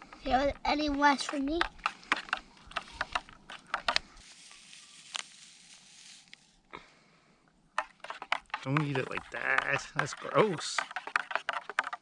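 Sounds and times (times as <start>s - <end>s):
person chewing and smacking: 1.6s - 4.1s
soft hiss: 4.2s - 7.6s.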